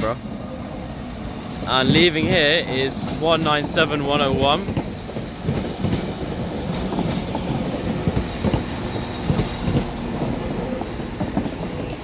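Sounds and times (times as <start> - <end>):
train wheels clattering: 1.2 - 12.0
high wheel squeal: 7.6 - 12.0.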